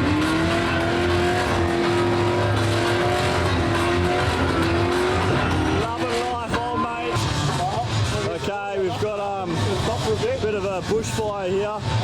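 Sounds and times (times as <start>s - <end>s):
car engine revving high: 0.0s - 8.3s.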